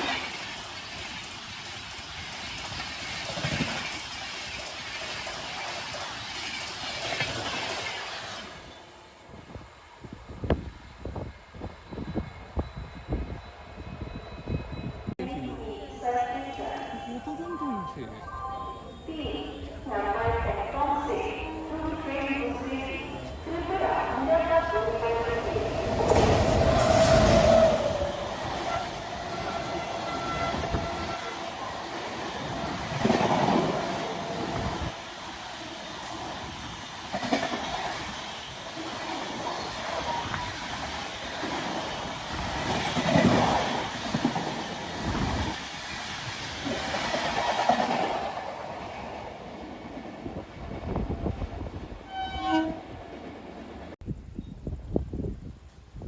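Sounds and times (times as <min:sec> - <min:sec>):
train horn: 0:28.6 - 0:31.5, 0:52.0 - 0:53.0.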